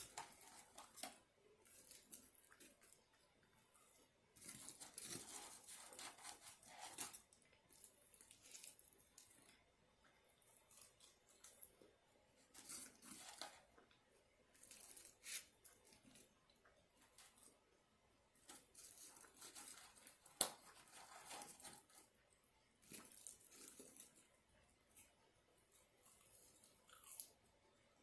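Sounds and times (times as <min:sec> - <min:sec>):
paper wrapping crinkling: 0:00.0 - 0:03.1, 0:18.4 - 0:22.1
crunchy biting and chewing: 0:26.0 - 0:27.4.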